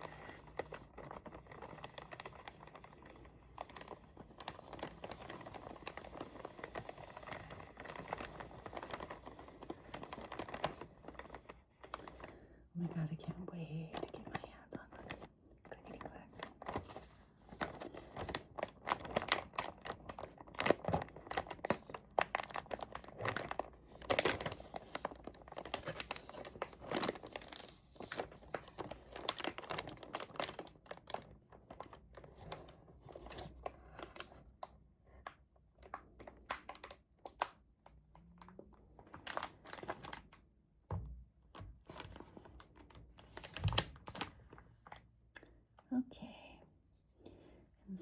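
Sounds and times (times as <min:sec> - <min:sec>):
packaging crinkling and tearing: 0:00.0 - 0:40.5, 0:41.5 - 0:45.0.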